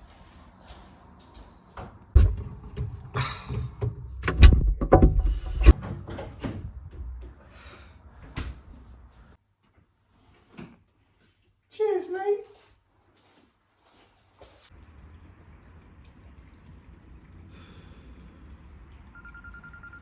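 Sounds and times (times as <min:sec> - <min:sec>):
irregular knocks and thuds: 0:02.2 - 0:07.4.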